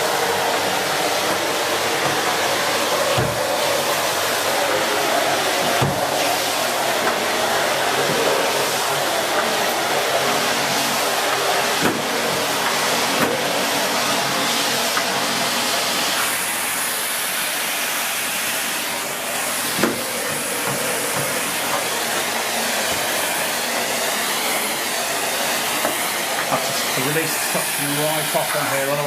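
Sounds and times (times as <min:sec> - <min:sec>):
vacuum cleaner running: 0:00.0 - 0:29.0
vacuum floor tool knocks: 0:03.1 - 0:03.5, 0:05.7 - 0:06.1, 0:11.8 - 0:13.4, 0:19.7 - 0:21.9.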